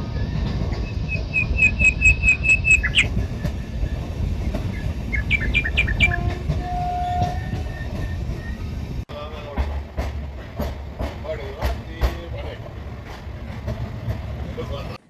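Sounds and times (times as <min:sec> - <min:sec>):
train wheels rumbling on track: 0:00.0 - 0:15.0
high chirps: 0:00.9 - 0:03.8, 0:04.7 - 0:06.2.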